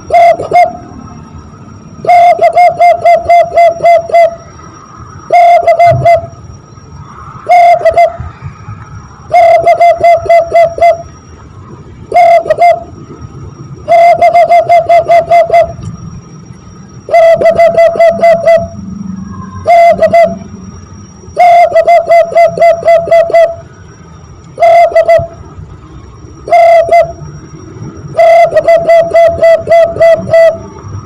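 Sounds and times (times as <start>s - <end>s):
hand-blown dove call imitation: 0.0s - 1.0s, 2.0s - 4.5s, 5.3s - 6.3s, 7.4s - 8.3s, 9.3s - 11.1s, 12.1s - 13.0s, 13.8s - 15.9s, 17.1s - 20.5s, 21.4s - 23.6s, 24.5s - 25.4s, 26.5s - 27.2s, 28.1s - 30.7s.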